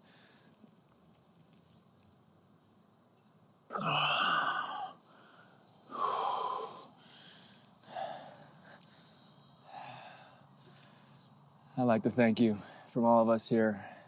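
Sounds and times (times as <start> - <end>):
man exhaling heavily: 3.7 - 8.4.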